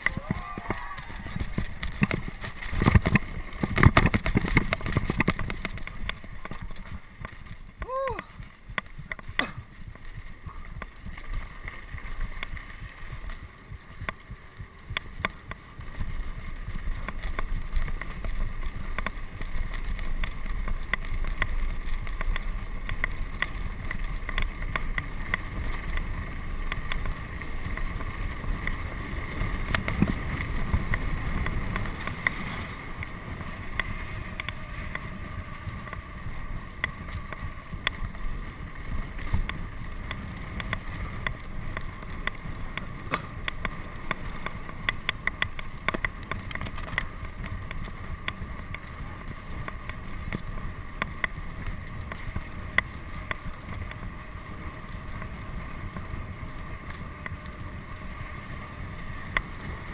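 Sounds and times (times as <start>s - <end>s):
wind buffeting microphone: 0.0s - 7.2s
sharp clicks and rattles: 0.0s - 7.8s.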